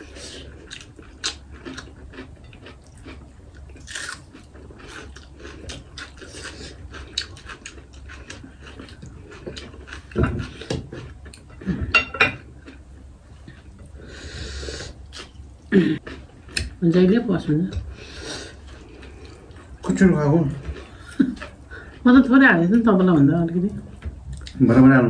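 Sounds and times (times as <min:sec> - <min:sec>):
chewing and crunching: 0:00.0 - 0:11.8, 0:15.0 - 0:16.8, 0:17.8 - 0:22.3.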